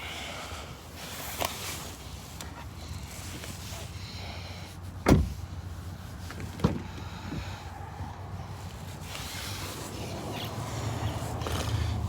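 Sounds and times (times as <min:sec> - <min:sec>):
truck doors thudding: 0:05.0 - 0:05.4.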